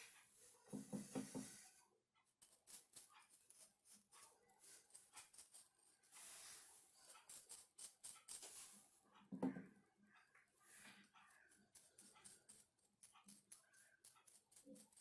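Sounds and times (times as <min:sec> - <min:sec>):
soft knock: 0:00.7 - 0:01.5, 0:09.3 - 0:09.7
faint clicks and taps: 0:09.1 - 0:15.0.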